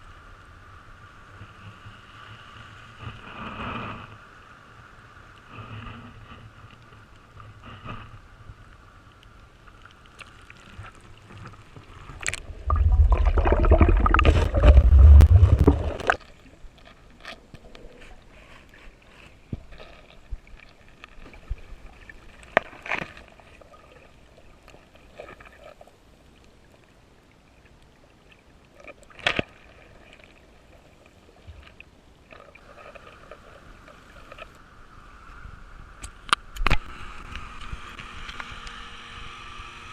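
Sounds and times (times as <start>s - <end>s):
water sloshing and gurgling: 9.6s - 34.6s.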